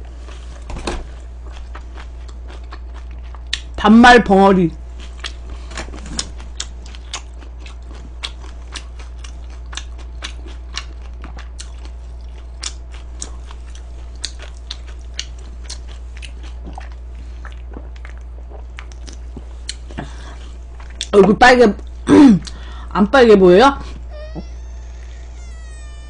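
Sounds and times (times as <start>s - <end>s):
person chewing crunchy food: 0.0s - 3.8s, 4.8s - 21.2s
low hum: 0.0s - 26.0s.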